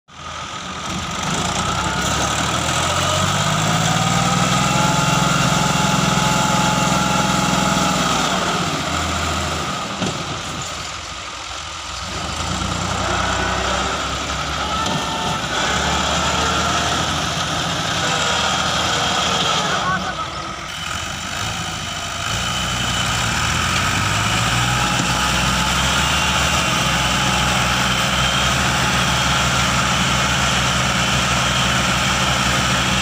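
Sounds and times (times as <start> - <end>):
tractor diesel engine under load: 0.1 - 33.0.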